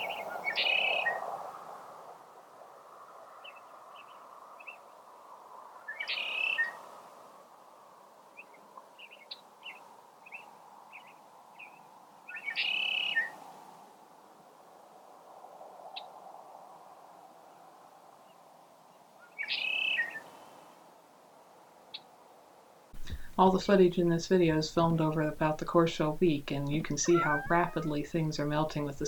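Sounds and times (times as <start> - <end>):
faint background hiss: 0.0 - 29.0
small birds singing: 8.4 - 13.3, 19.3 - 20.2, 23.0 - 29.0.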